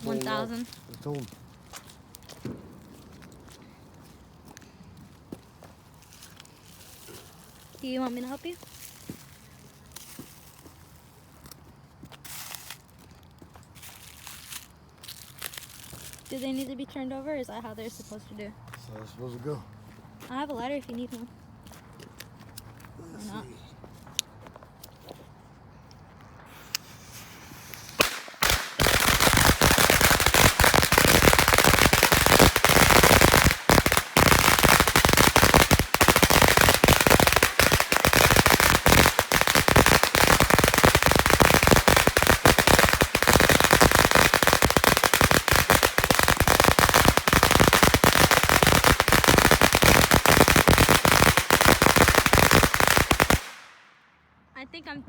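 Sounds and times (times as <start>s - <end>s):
firecrackers going off: 26.4s - 54.0s.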